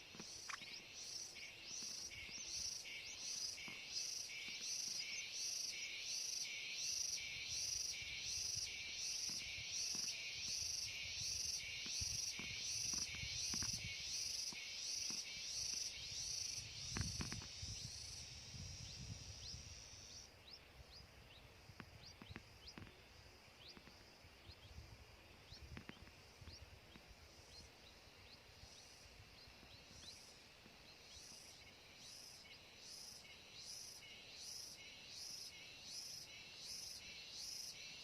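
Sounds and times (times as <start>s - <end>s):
high insect buzz: 0.0s - 20.3s
faint insect chirps: 0.0s - 38.0s.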